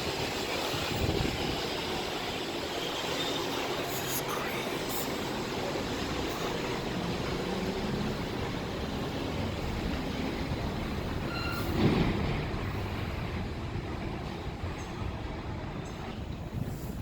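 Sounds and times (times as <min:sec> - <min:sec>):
train wheels rattling on rails: 0:00.0 - 0:03.8, 0:05.2 - 0:17.0
high squeal: 0:11.3 - 0:11.8.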